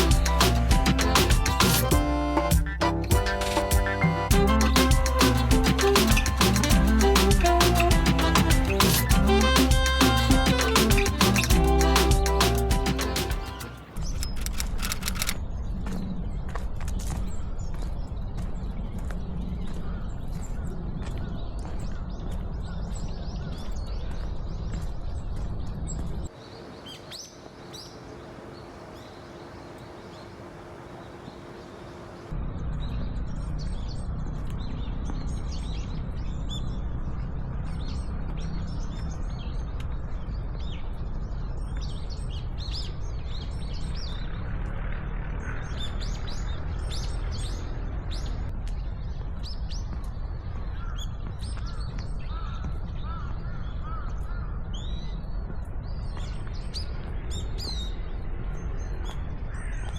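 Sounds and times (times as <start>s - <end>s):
small birds chirping: 0.0s - 16.1s, 17.2s - 44.5s, 45.1s - 59.9s
low outdoor rumble: 0.0s - 23.0s.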